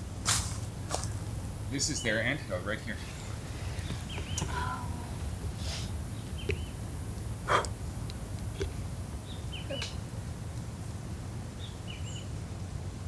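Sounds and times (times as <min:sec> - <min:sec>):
steady low rumble: 0:00.0 - 0:11.7
bird calling: 0:01.1 - 0:11.0.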